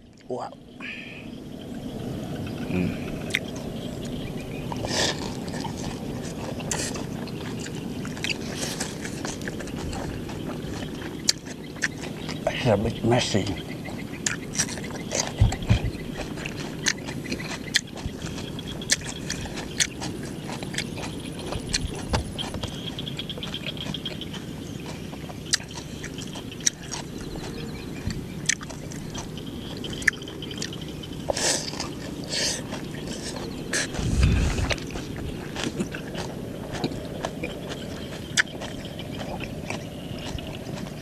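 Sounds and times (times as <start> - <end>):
mouth noises: 2.6 - 19.6, 25.6 - 39.6
crunching crispy food: 2.7 - 41.0.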